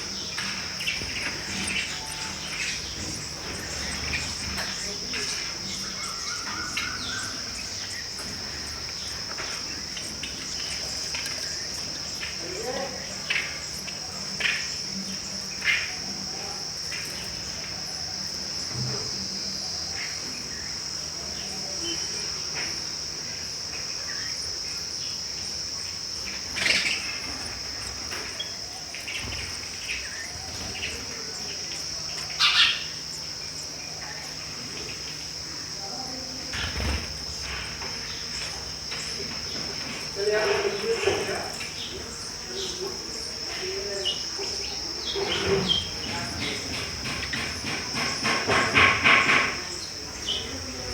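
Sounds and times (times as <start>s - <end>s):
sparrow chirps: 0.0s - 16.0s, 26.3s - 35.4s
high-pitched insect trill: 0.0s - 50.9s.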